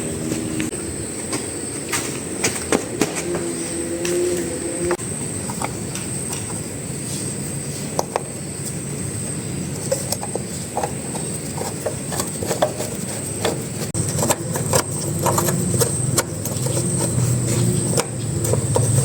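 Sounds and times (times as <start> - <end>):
small generator engine running: 0.0 - 1.2, 9.1 - 19.0.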